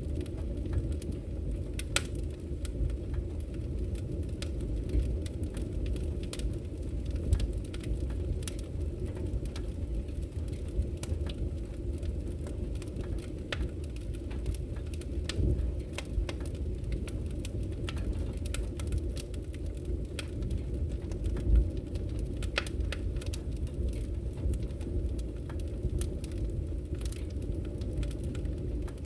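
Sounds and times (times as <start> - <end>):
fire crackling and popping: 0.0 - 29.0
low rumble of flames: 0.0 - 29.0.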